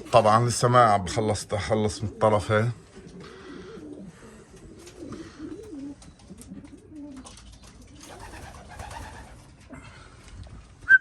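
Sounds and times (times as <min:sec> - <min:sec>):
pigeons cooing: 0:00.0 - 0:10.0
birds clicking and rustling: 0:04.4 - 0:10.5.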